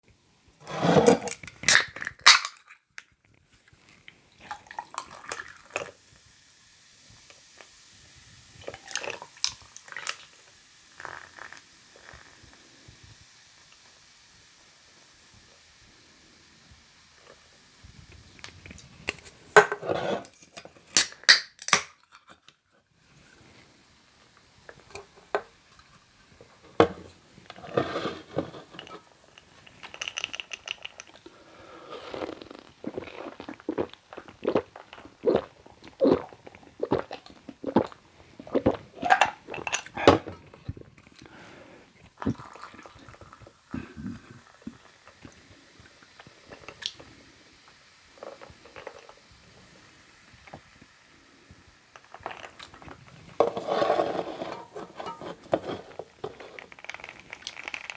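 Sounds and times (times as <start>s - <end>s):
person gulping and swallowing: 32.0s - 41.0s, 42.1s - 45.4s.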